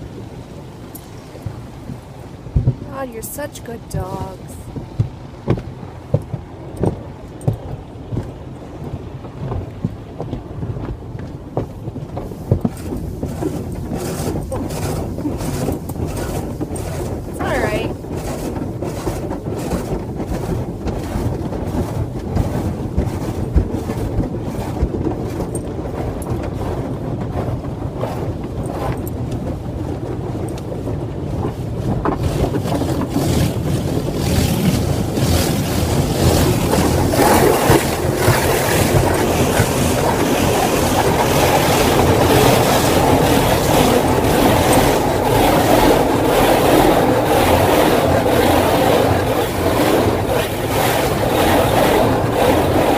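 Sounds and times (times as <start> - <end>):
car wash pulsing swish: 0.0 - 52.9
water spray on car body: 32.2 - 52.9.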